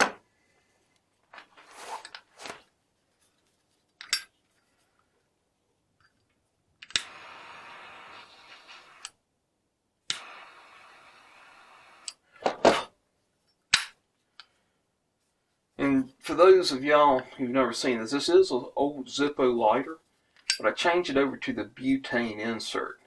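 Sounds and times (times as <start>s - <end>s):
torch lighter clicking: 6.8s - 9.2s, 10.1s - 12.2s
jet flame hissing: 6.9s - 9.1s, 10.1s - 12.8s.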